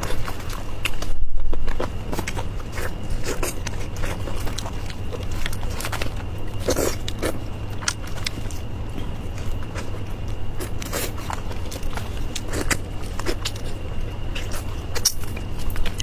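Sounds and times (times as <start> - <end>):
low hum: 0.0 - 16.0
person chewing crackly food: 0.0 - 16.0.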